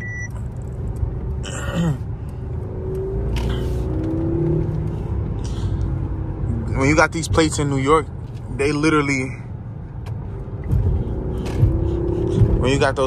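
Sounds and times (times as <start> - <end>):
road rumble: 0.0 - 13.0
car engine accelerating: 2.0 - 9.0, 9.8 - 13.0.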